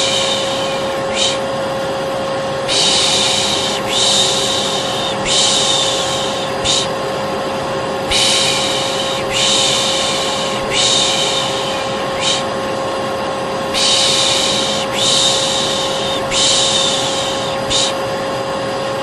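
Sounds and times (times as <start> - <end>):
person shushing: 0.0 - 1.7, 2.6 - 7.0, 8.1 - 12.6, 13.8 - 18.1
hair dryer humming: 0.0 - 19.0.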